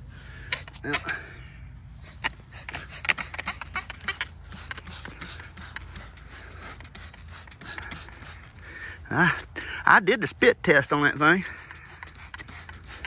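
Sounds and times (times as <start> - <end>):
air leaking through soapy water: 2.0 - 9.1, 10.9 - 13.0.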